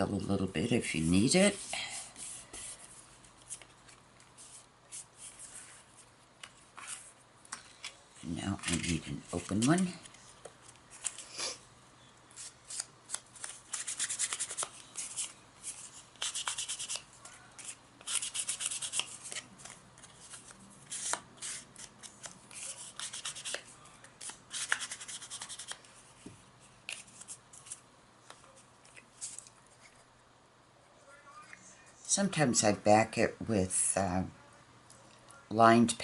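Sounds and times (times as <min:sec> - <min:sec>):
paper cards rubbed by hand: 0:12.4 - 0:26.2.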